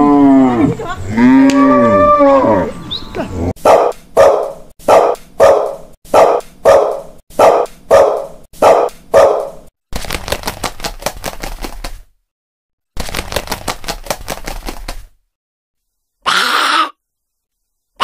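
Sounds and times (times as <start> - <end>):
dog barking: 3.6 - 9.7
rapid clicking: 13.0 - 15.0.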